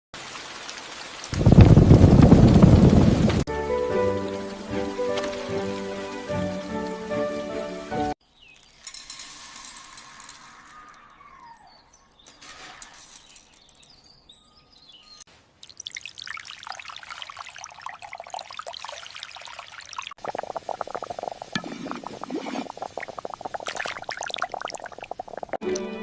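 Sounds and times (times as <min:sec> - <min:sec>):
water pouring and trickling: 0:00.2 - 0:11.0, 0:15.0 - 0:26.0
bird calls: 0:10.6 - 0:15.2.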